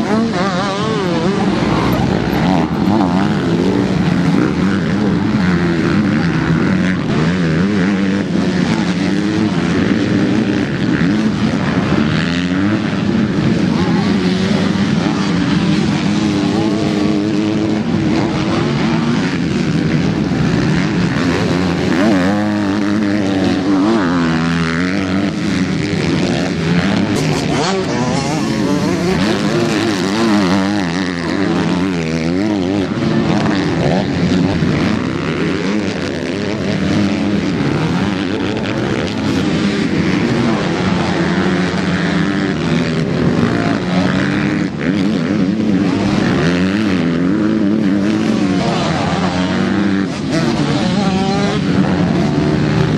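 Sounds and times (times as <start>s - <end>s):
motocross bike engines revving: 0.0s - 52.9s.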